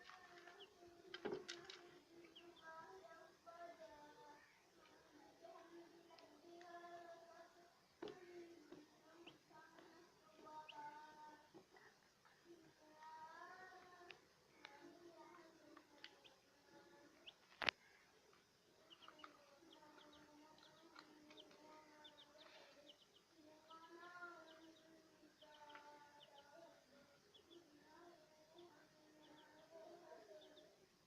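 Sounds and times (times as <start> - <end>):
faint bird chirping: 0.0 - 31.0.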